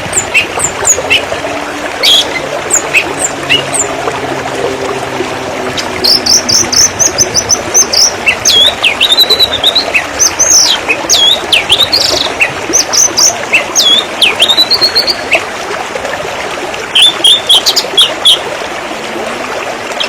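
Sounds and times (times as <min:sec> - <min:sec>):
low drone: 0:00.0 - 0:13.5
songbird singing: 0:00.0 - 0:15.4
running water: 0:00.0 - 0:20.0.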